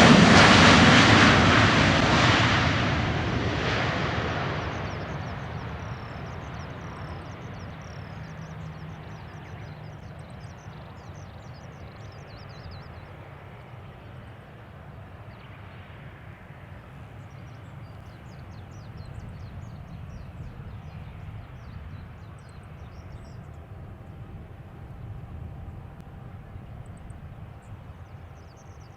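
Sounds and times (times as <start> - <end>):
jet engines rumbling: 0.0 - 28.9
birds chirping: 3.1 - 25.0.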